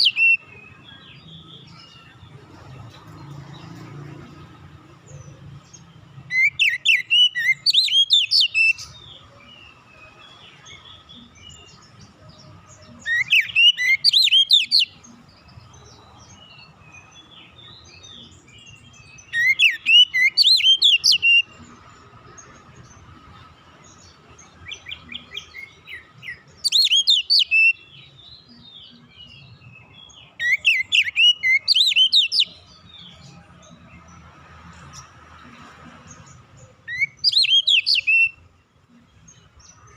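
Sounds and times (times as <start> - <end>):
bird singing whistled phrases: 0.0 - 0.7, 6.3 - 9.0, 13.0 - 15.0, 26.6 - 28.1, 30.4 - 32.6, 36.9 - 38.4.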